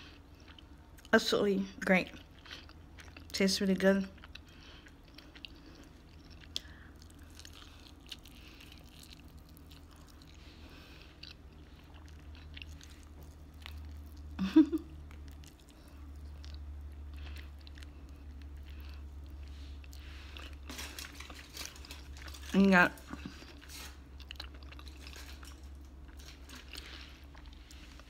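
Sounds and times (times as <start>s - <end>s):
chewing and biting chicken wings: 4.1s - 28.0s
small crunches: 15.1s - 28.0s.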